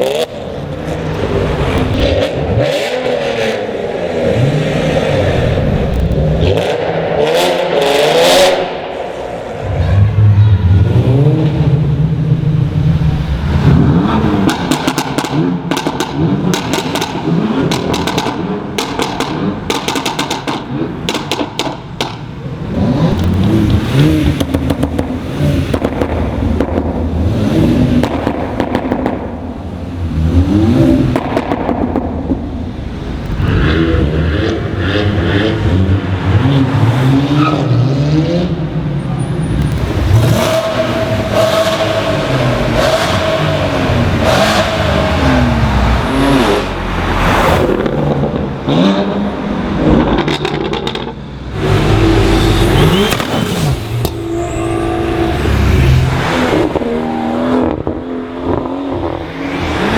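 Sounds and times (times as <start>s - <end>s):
car engines revving: 0.0s - 59.9s
exhaust crackles and pops: 13.8s - 22.4s, 23.1s - 27.2s, 27.9s - 29.6s, 52.7s - 54.2s.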